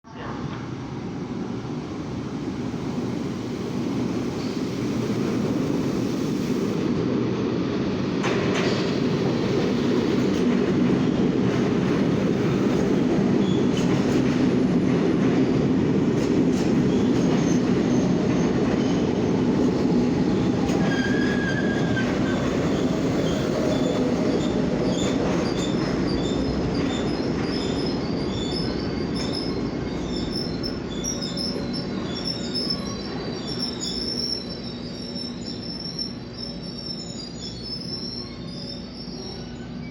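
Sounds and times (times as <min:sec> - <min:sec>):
train wheels rumbling on rail: 0:00.4 - 0:39.9
brake squeals: 0:28.4 - 0:39.9.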